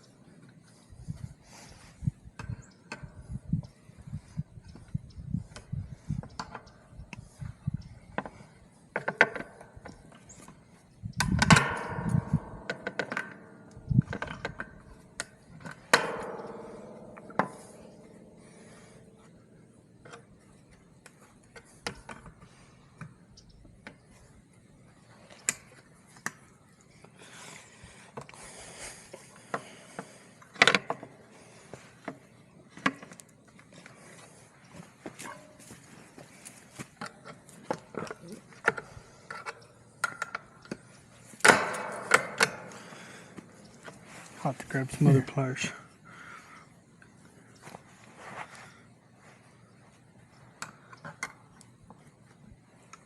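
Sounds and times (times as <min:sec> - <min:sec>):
metal clicks and rattles: 0:08.9 - 0:19.4
ringing metal clanks: 0:11.2 - 0:19.6, 0:41.4 - 0:45.7.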